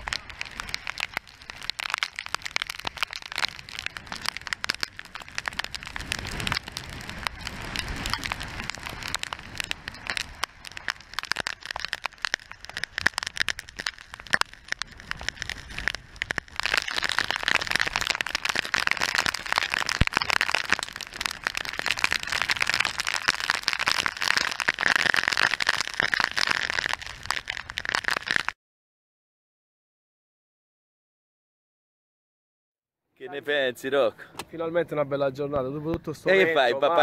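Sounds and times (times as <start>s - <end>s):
rain and spray hitting camera: 0.0s - 28.6s, 36.2s - 37.0s.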